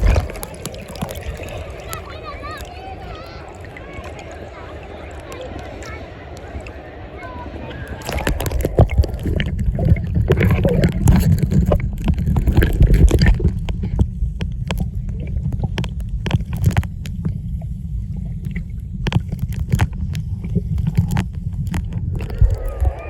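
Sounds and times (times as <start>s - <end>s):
sharp clicks and crackles: 0.0s - 2.8s, 8.0s - 23.0s
muffled underwater rumble: 0.0s - 23.0s.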